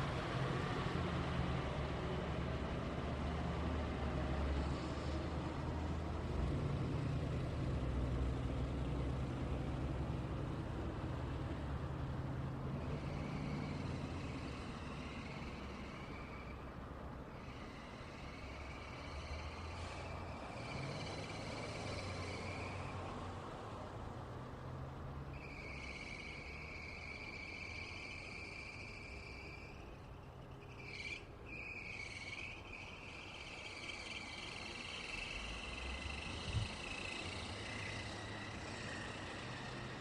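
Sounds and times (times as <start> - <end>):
road traffic passing: 0.0 - 40.0
insects chirring: 25.4 - 40.0.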